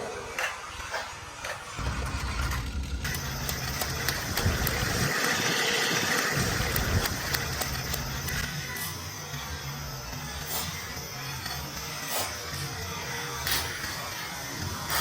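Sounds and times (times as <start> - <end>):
toy train motor hum and rattle: 0.1 - 15.0
light clicks of train on track: 3.1 - 8.5.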